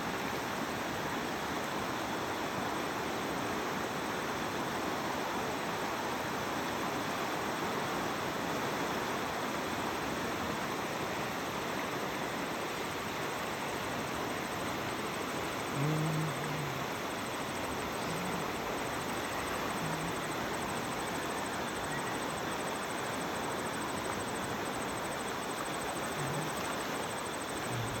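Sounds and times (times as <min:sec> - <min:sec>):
river water flowing: 0:12.5 - 0:28.0
insect chirping: 0:13.3 - 0:28.0.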